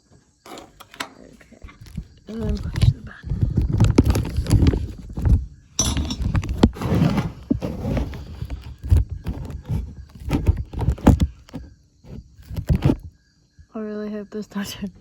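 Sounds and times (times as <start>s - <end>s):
phone handling noise in a bag: 0.5s - 11.7s, 12.4s - 13.1s.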